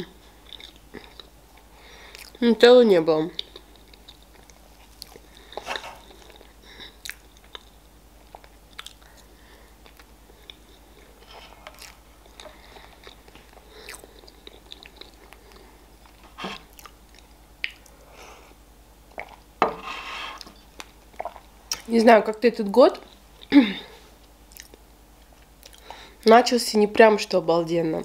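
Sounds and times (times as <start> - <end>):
wet chewing mouth sounds: 3.4 - 18.0, 19.1 - 19.5, 20.4 - 21.9, 24.5 - 24.8.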